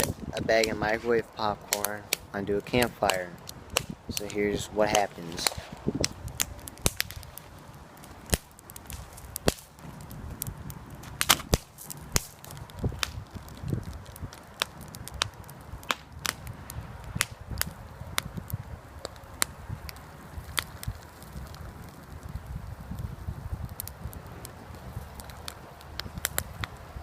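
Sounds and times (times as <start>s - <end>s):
campfire wood crackling: 0.0s - 27.0s.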